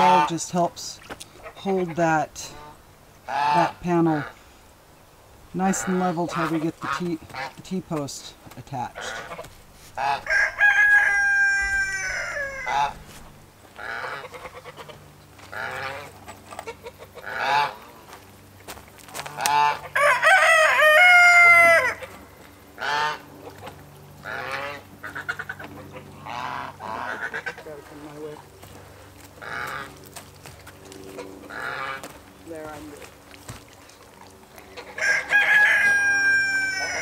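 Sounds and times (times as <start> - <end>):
poultry calls: 0.0 - 4.7, 5.5 - 8.0, 8.8 - 18.2, 19.1 - 37.0
rooster crowing: 10.0 - 13.2, 19.7 - 22.2, 34.8 - 37.0.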